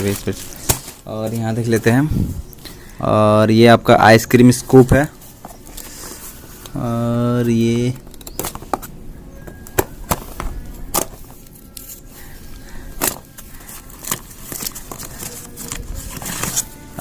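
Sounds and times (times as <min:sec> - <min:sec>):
plastic packaging crinkling: 0:11.0 - 0:17.0.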